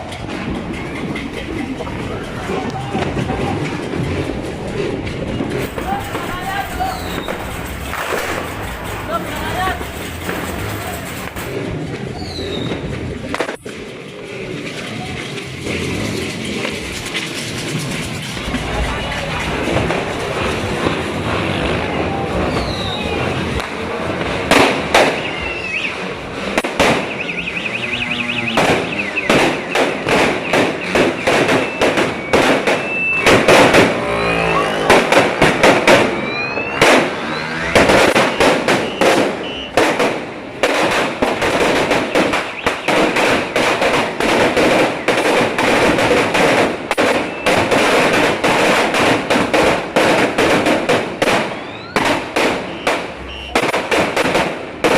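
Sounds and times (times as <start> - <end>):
firecracker string cracking: 0.0 - 54.9
whistling glides: 6.7 - 8.4, 12.1 - 12.8, 22.4 - 23.4, 25.0 - 26.1, 27.0 - 33.3, 36.1 - 39.8, 52.7 - 53.6.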